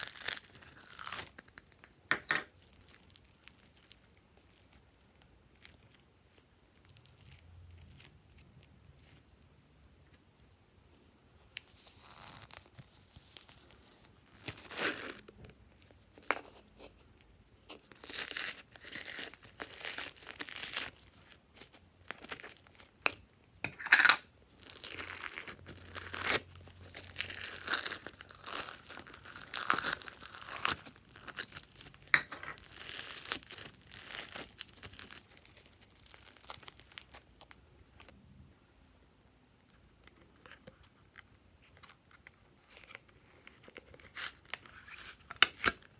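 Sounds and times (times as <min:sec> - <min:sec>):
slime crackling and popping: 0:00.0 - 0:01.6, 0:24.5 - 0:37.6.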